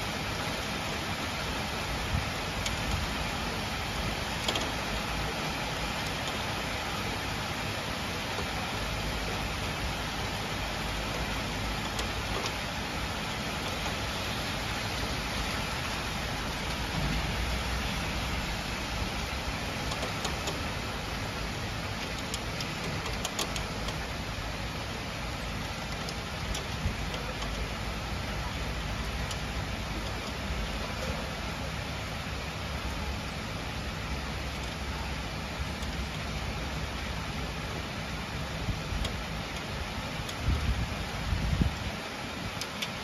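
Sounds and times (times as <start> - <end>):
heavy rain pouring: 0.0 - 43.0
raindrops ticking on something: 0.0 - 43.0
low thunder rumble: 15.5 - 19.9.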